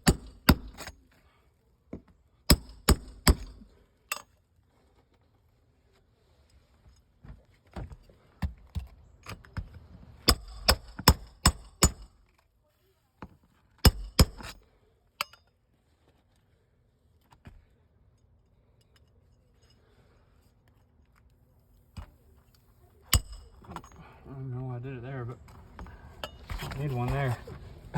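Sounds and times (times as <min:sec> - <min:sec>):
hammer driving nails into shingles: 0:00.0 - 0:00.9, 0:02.5 - 0:04.2, 0:10.3 - 0:12.2, 0:13.8 - 0:14.6, 0:23.1 - 0:24.0.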